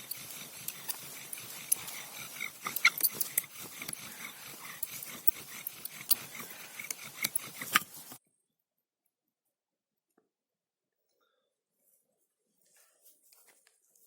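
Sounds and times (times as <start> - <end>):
wooden spindle squeaking and clicking: 0.0 - 8.2.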